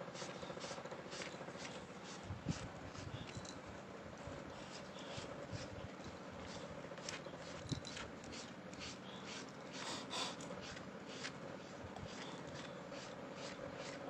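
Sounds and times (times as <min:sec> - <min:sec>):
steady low hum: 0:00.0 - 0:14.0
fingers scratching fur: 0:06.4 - 0:14.0.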